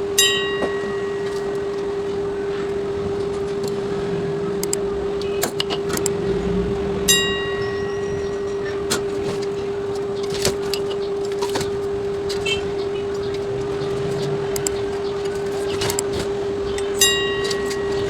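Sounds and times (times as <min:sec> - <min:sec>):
steady hum: 0:00.0 - 0:18.0
metallic ring: 0:06.4 - 0:10.2, 0:17.0 - 0:18.0.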